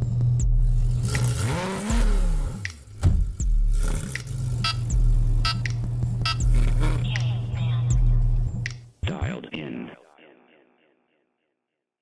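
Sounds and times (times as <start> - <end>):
car engine revving: 0.0 - 7.5.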